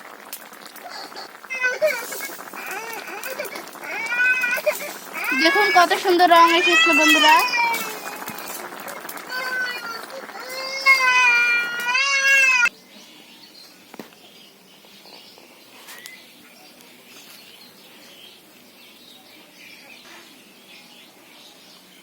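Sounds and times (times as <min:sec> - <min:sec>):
small child crying: 0:00.9 - 0:12.7.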